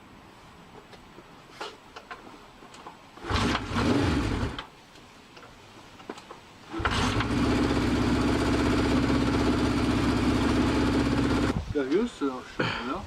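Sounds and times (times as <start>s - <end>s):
motorcycle engine starting and idling: 3.2s - 4.7s, 6.7s - 11.6s.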